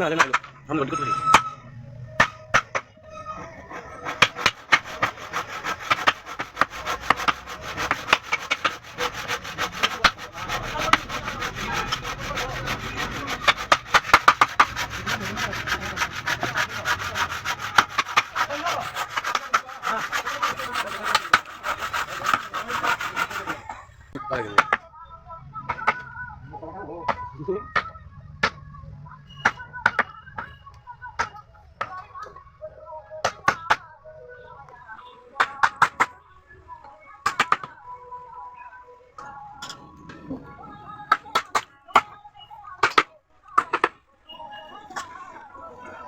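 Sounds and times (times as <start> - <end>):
hand tool rasping wood: 2.2 - 23.8.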